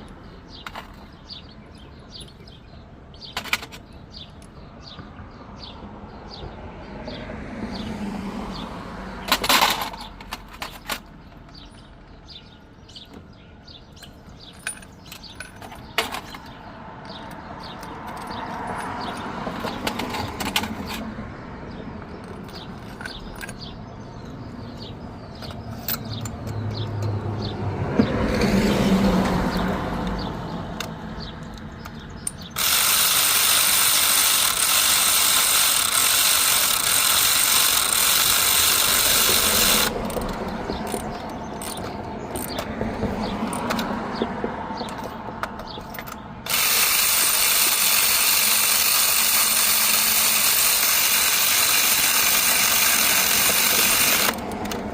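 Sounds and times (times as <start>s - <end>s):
ratchet clicking: 30.8s - 42.7s, 44.8s - 54.9s.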